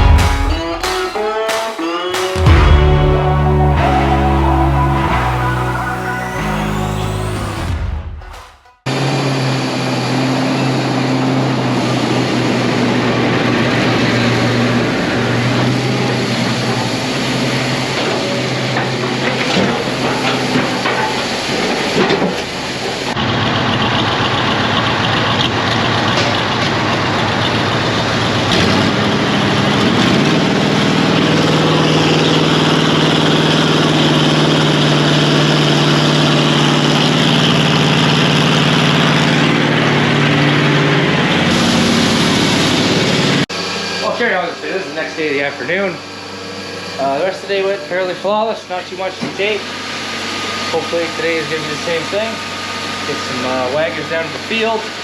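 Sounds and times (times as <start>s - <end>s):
heavy vehicle engine revving: 0.0s - 54.6s.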